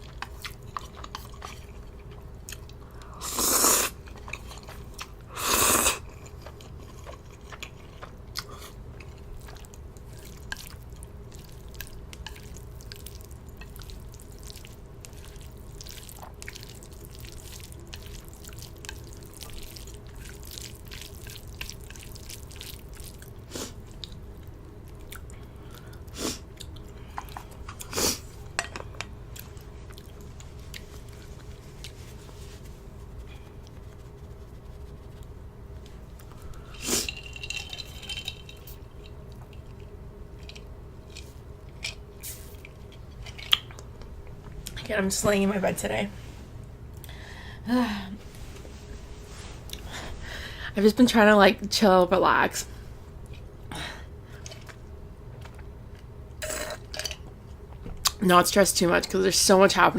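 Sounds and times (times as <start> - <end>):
chewing with wet mouth clicks: 0.0 - 3.1, 6.0 - 27.9, 38.7 - 44.8
noodle slurps: 3.2 - 4.4, 5.3 - 6.3.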